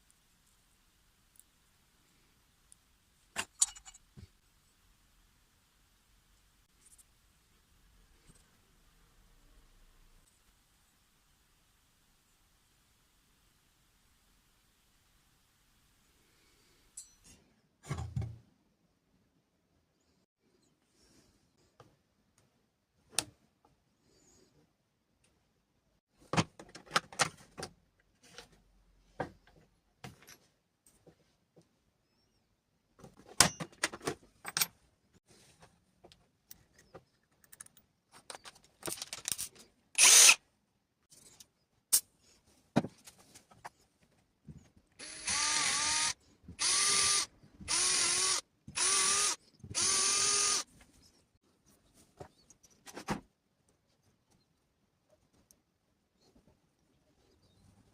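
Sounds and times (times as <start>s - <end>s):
metal tools knocking and clinking: 3.4s - 4.1s
small power tool motor whining: 45.0s - 50.6s.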